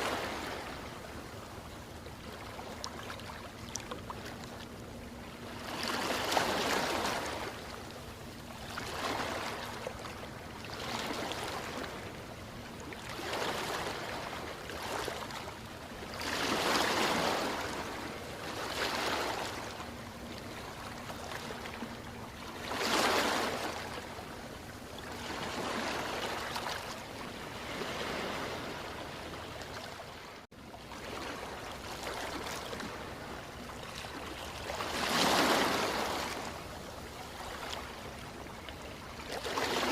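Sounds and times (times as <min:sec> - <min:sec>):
ocean waves washing in: 0:00.0 - 0:39.9.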